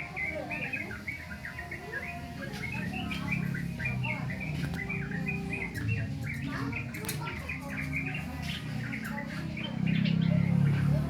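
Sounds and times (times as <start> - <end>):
bird chirping and warbling: 0.0 - 11.0.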